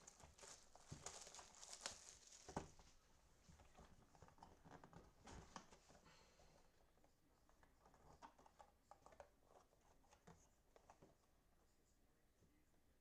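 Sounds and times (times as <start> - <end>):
packaging rustling and tapping: 0.0 - 3.0.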